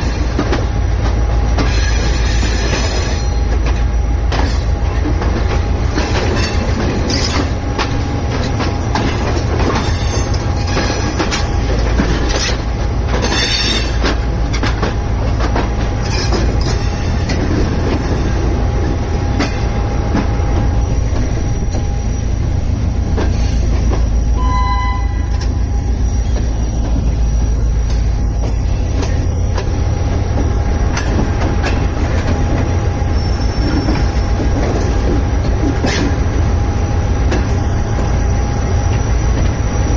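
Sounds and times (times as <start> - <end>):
train rumbling on track: 0.0 - 39.9
short pitched sound: 24.3 - 26.7
wheel squeal: 33.1 - 34.3.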